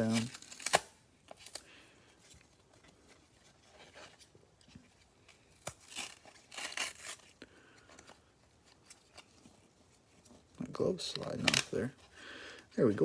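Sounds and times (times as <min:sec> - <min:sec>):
packaging tearing and crinkling: 0:00.0 - 0:01.7, 0:05.3 - 0:07.4.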